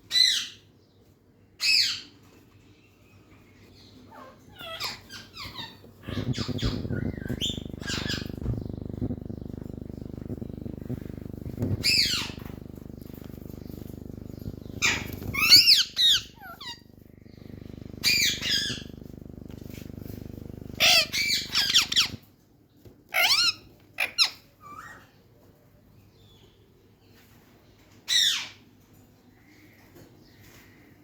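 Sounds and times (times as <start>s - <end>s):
parrots squawking: 4.1s - 8.5s, 11.8s - 12.5s, 14.8s - 16.8s, 20.8s - 22.2s
steady low hum: 5.9s - 22.2s.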